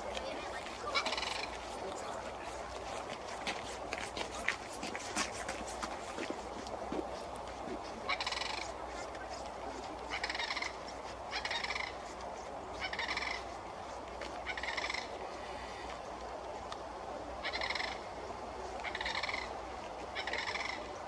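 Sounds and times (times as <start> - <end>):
crane rattling calls: 0.9 - 1.5.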